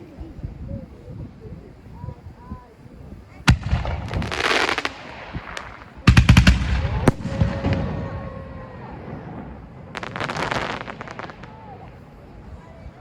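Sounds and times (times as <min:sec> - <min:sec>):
fireworks crackling shower: 0:00.0 - 0:13.0
fireworks bangs: 0:03.4 - 0:13.0.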